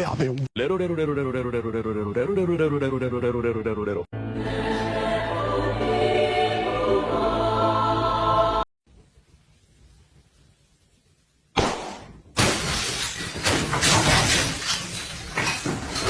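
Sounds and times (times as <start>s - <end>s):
song with singing: 4.3s - 8.6s
loud crash: 11.6s - 16.0s
clattering and smashing: 12.4s - 16.0s.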